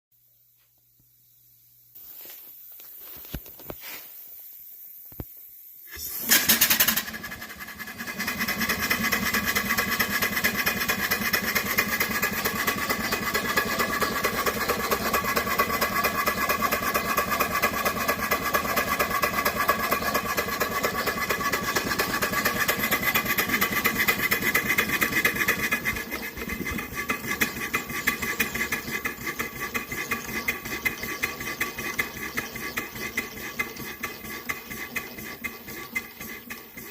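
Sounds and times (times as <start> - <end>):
steam engine burst: 5.9 - 32.2
steam engine running: 5.9 - 36.9.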